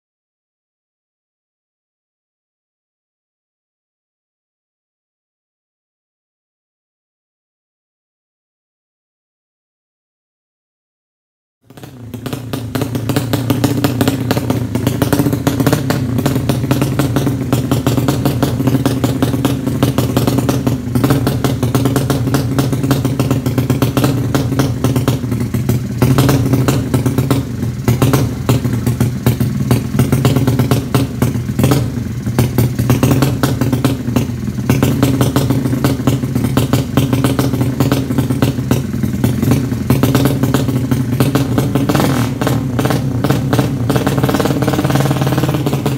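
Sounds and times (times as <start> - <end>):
motorcycle engine fast idle: 11.7 - 45.9.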